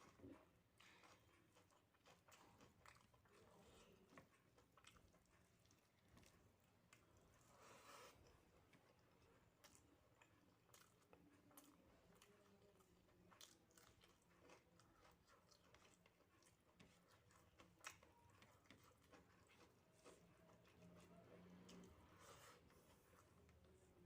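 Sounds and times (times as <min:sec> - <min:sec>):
mouth chewing soft food: 0:00.0 - 0:24.0.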